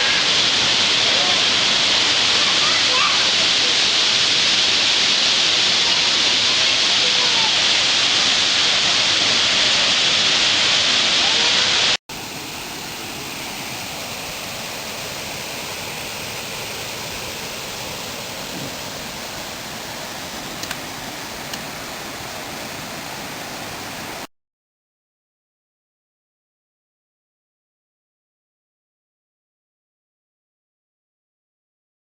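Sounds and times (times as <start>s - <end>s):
waterfall rushing: 0.0s - 24.3s.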